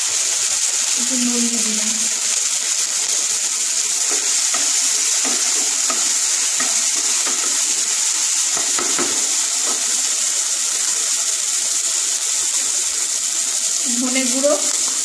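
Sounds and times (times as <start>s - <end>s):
vegetables sizzling in oil: 0.0s - 15.0s
wooden spatula scraping pan: 4.0s - 7.8s.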